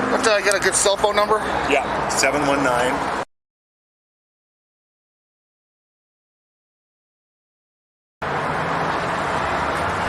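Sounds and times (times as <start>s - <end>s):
highway traffic noise: 0.0s - 3.3s, 8.2s - 10.0s.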